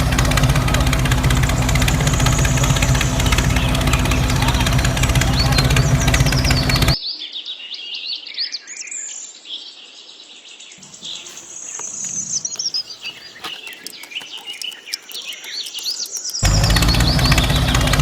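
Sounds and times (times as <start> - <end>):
small birds chirping: 0.0 - 7.0, 10.8 - 18.0
small motor running: 0.0 - 7.0, 10.8 - 18.0.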